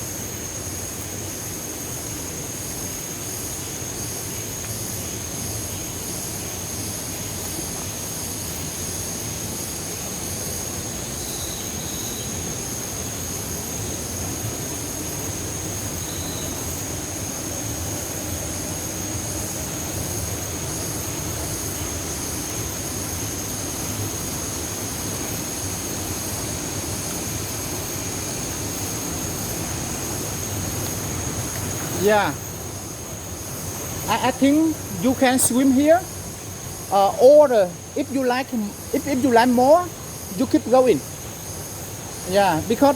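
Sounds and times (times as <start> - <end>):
waterfall rushing: 13.2 - 42.9.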